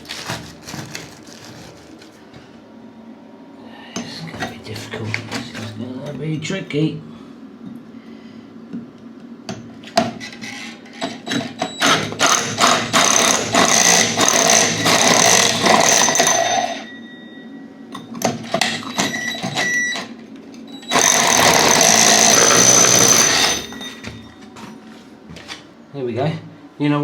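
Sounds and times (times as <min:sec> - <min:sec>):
power tool cutting plastic pipe: 0:11.8 - 0:16.7, 0:20.8 - 0:23.8.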